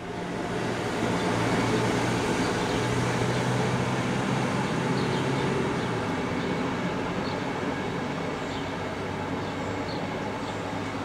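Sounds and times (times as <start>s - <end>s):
passenger train rumbling past: 0.0s - 11.0s.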